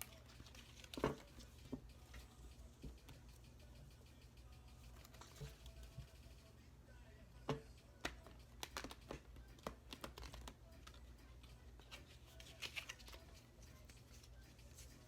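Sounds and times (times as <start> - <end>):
cards being shuffled by hand: 0.0 - 3.3, 4.8 - 6.2, 8.0 - 15.0.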